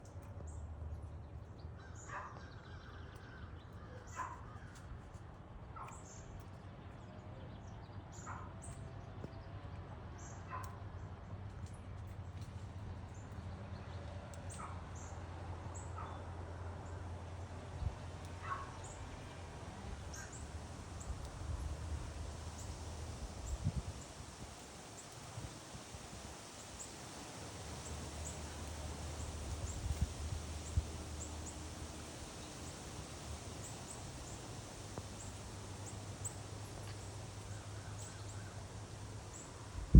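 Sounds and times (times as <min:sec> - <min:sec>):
birds calling: 0:18.2 - 0:19.1, 0:22.0 - 0:39.8.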